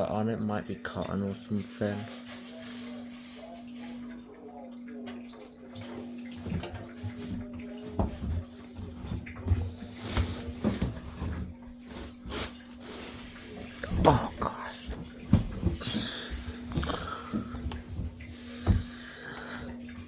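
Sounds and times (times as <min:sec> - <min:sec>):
clothes rustling: 0:06.0 - 0:19.8
soft thumps and knocks: 0:06.4 - 0:12.6, 0:13.8 - 0:19.1.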